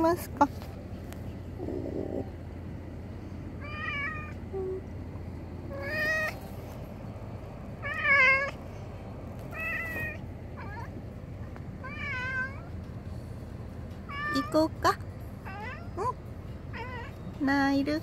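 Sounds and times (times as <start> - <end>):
cat meowing: 3.6 - 4.8, 5.7 - 6.5, 7.8 - 8.6, 9.5 - 10.9, 11.8 - 12.7, 14.1 - 14.6, 15.4 - 17.2.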